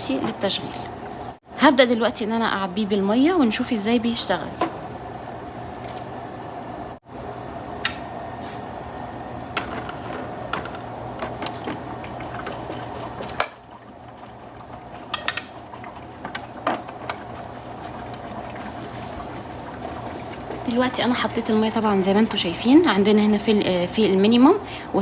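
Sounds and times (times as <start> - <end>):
water running into plastic tank: 9.5 - 23.4.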